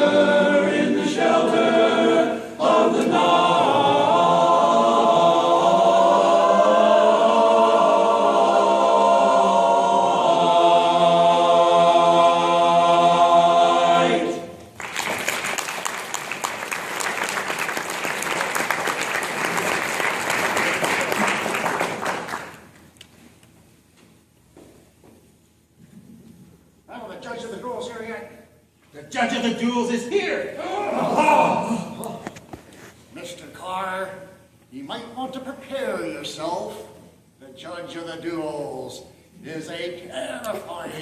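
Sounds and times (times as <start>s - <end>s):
vocal group singing in harmony: 0.0s - 14.7s
audience applauding: 14.8s - 22.8s.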